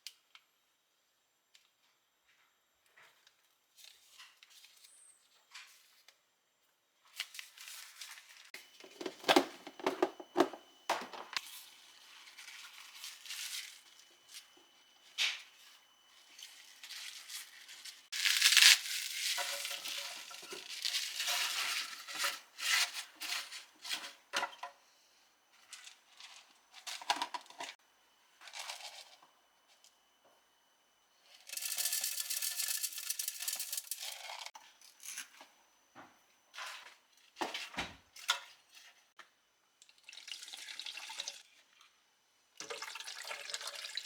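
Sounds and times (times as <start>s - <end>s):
utensils and dishes clicking: 31.4s - 35.3s.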